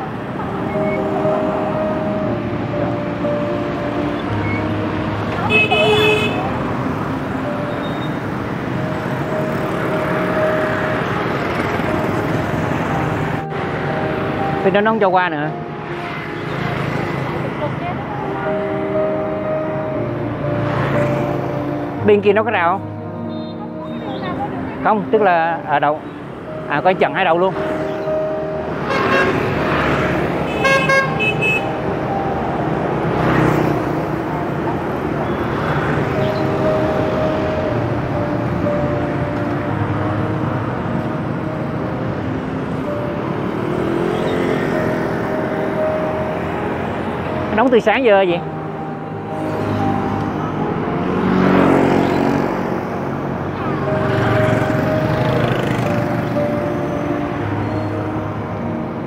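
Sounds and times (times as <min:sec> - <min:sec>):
street traffic: 0:00.0 - 0:59.0
vehicle passing: 0:00.0 - 0:59.0
vehicle horn toots: 0:05.4 - 0:06.5, 0:23.2 - 0:24.4, 0:28.9 - 0:29.5, 0:30.5 - 0:31.8.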